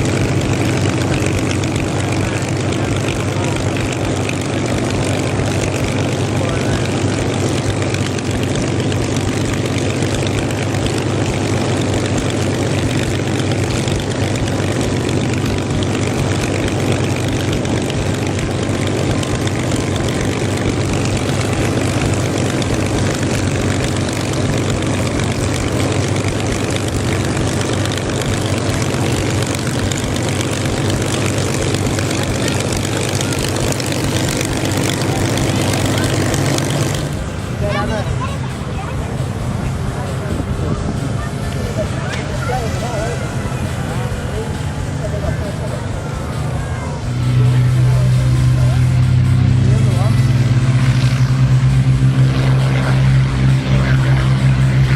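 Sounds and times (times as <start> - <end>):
aircraft engines droning: 0.0 - 54.9.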